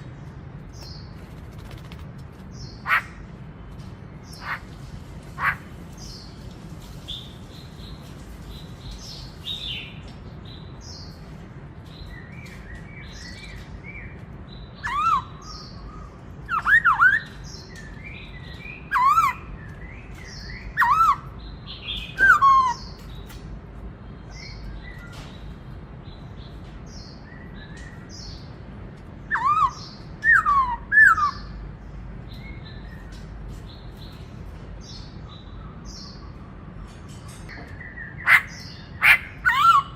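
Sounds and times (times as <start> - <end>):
bird chirps and twitters: 0.0 - 39.9
bird whistled song: 14.8 - 23.3, 29.3 - 31.6.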